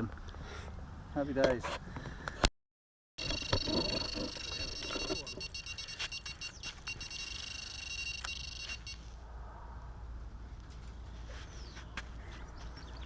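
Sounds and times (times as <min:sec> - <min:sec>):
fishing line running off reel: 0:03.2 - 0:09.1
high-pitched bite alarm tone: 0:03.2 - 0:09.1.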